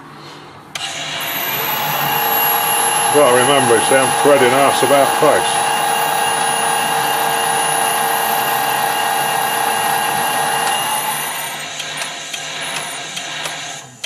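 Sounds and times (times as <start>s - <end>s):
metal lathe electric whine: 0.8s - 11.8s.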